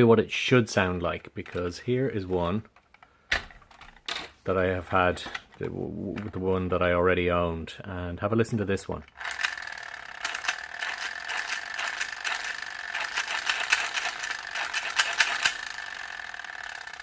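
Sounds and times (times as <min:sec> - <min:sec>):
toy propeller gear whirring: 0:09.0 - 0:17.0.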